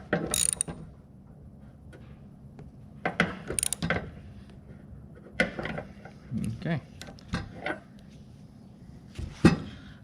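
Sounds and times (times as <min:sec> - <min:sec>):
ratchet wrench clicking: 0:00.3 - 0:00.7, 0:03.6 - 0:03.8.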